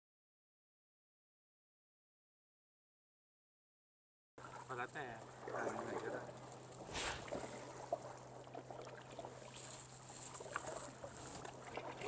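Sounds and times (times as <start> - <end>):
paddle splashes and drips: 4.4 - 12.0.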